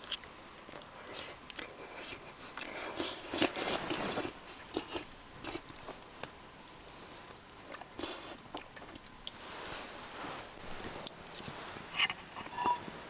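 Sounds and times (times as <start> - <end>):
person eating crunchy food: 0.0 - 6.0.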